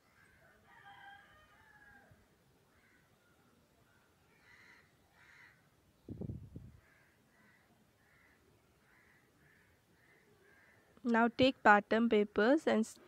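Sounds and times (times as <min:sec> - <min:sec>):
faint bird calls: 0:01.5 - 0:11.0.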